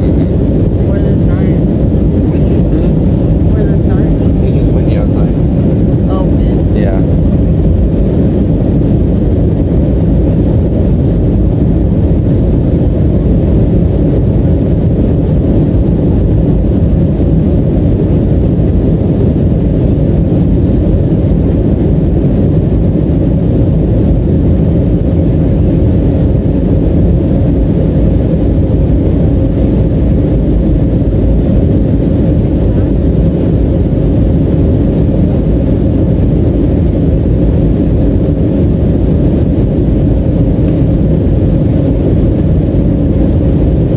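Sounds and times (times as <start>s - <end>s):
airliner engine rumble in cabin: 0.0s - 43.9s.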